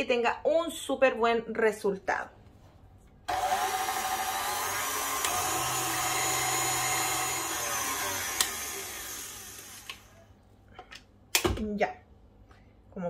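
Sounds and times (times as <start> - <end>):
stand mixer motor whining: 3.3 - 10.2.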